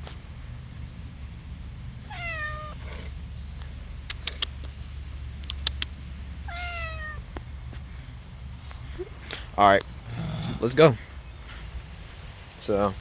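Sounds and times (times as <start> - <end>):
cat meowing: 2.0 - 3.1, 6.4 - 7.3
sharp clicks: 3.6 - 6.0.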